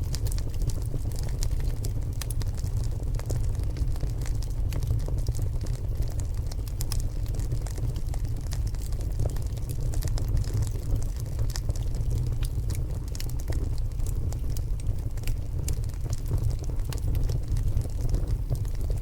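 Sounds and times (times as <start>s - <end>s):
logs crackling in fireplace: 0.0s - 19.0s.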